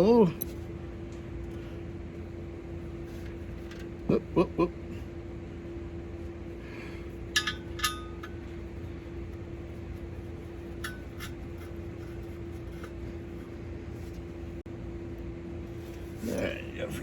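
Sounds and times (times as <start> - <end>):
steady background hum: 0.0 - 17.0
metal parts clinking: 7.3 - 8.4.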